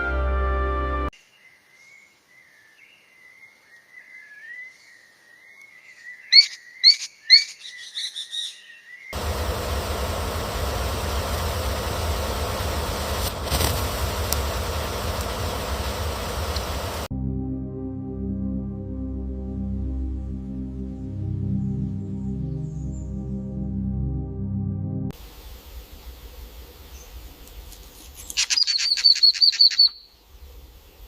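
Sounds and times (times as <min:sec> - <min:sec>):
rushing noise with low rumble: 0:09.2 - 0:17.1
bird whistling and chirping: 0:28.4 - 0:30.1.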